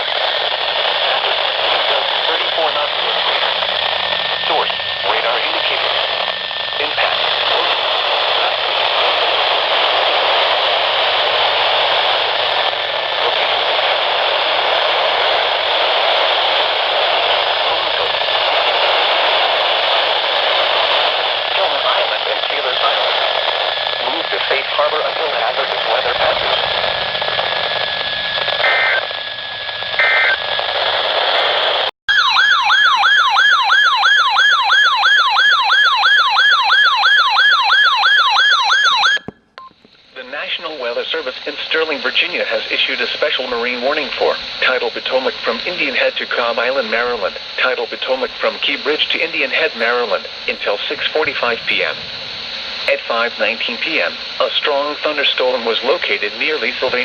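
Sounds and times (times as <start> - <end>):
radio static hiss: 0.0 - 31.9, 39.8 - 57.0
emergency alert tone: 28.6 - 29.1, 30.0 - 30.4, 32.1 - 39.8.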